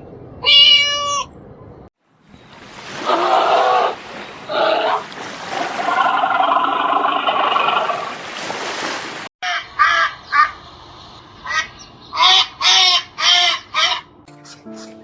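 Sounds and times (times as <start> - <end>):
harsh animal call: 3.0 - 8.2.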